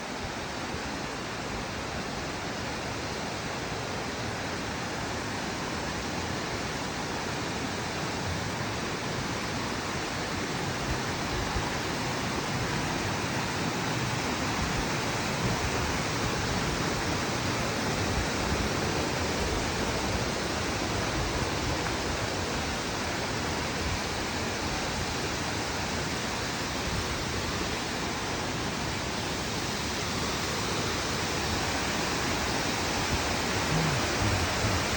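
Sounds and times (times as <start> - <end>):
waterfall rushing: 27.6 - 34.9.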